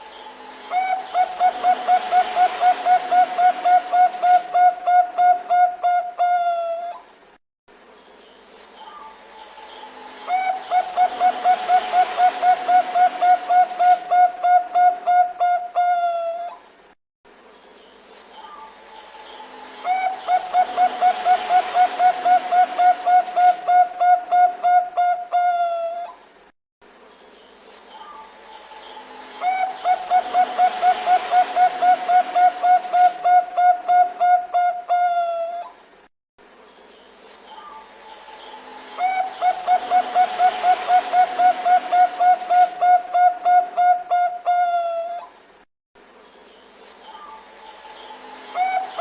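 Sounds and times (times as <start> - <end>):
steady hiss: 0.0 - 15.8, 16.4 - 25.4, 26.0 - 44.5, 45.1 - 49.0
dove cooing: 0.7 - 7.0, 10.3 - 16.6, 19.8 - 26.2, 28.8 - 35.7, 37.6 - 45.3, 48.0 - 49.0.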